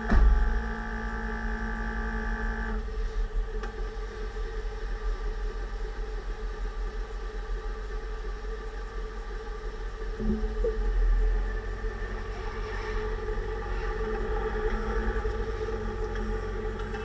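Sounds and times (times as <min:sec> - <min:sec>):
steady differential whine: 0:00.0 - 0:17.0
low road rumble: 0:10.1 - 0:17.0.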